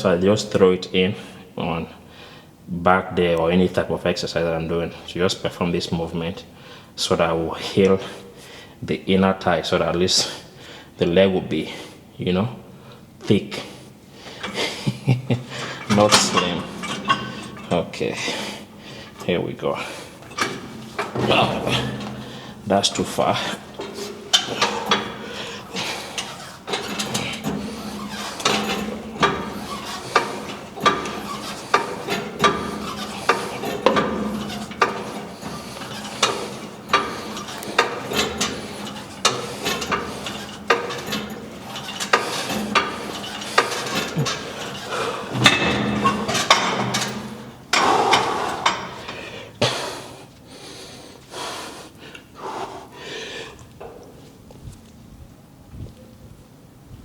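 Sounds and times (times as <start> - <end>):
weight stack clinking and knocking: 14.2 - 49.8.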